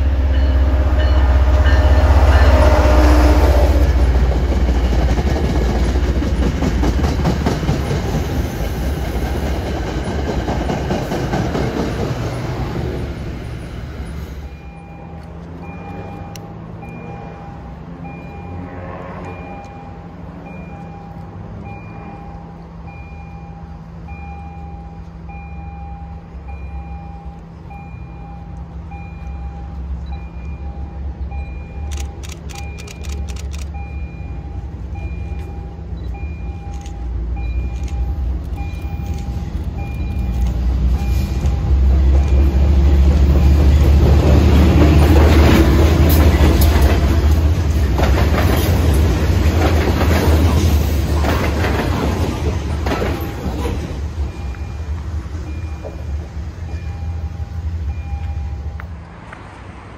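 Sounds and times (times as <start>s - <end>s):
diesel train rumble: 0.0s - 59.9s
train wheels on rails: 0.0s - 59.9s
faint repeating beep: 56.6s - 58.8s.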